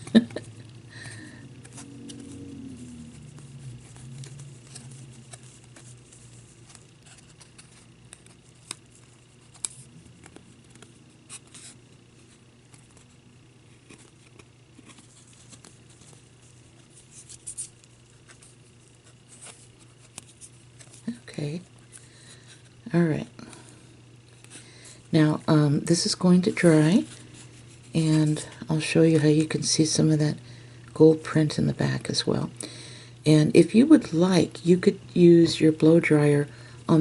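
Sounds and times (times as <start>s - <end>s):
soft rubbing: 1.2s - 22.9s.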